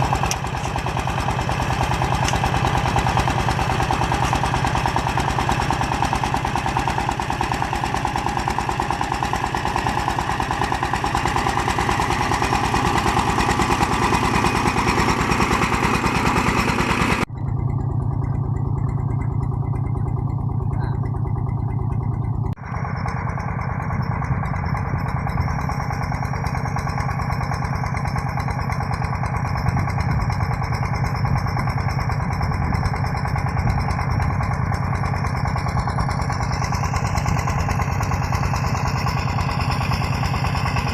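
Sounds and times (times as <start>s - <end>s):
single-cylinder diesel engine chugging: 0.0s - 40.9s.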